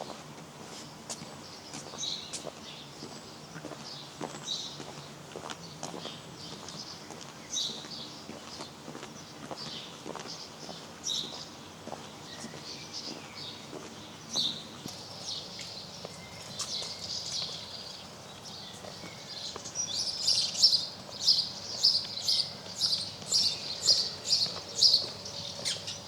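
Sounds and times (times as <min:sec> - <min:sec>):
songbirds singing: 0:00.0 - 0:26.0.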